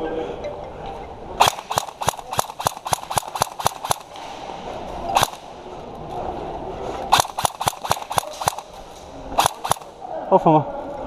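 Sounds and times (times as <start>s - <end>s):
airsoft guns firing: 1.4s - 5.6s, 7.1s - 10.0s.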